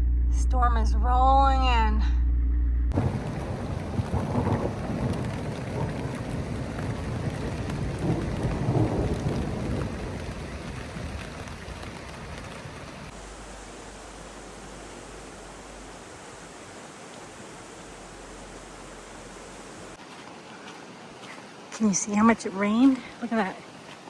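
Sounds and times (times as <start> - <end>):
thunder rumbling: 2.9 - 20.0
steady rain: 2.9 - 24.0.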